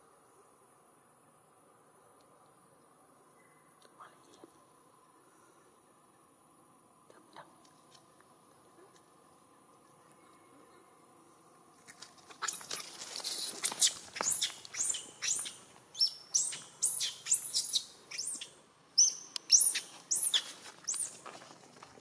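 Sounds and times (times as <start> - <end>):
bird chirping high descending notes: 12.5 - 21.1.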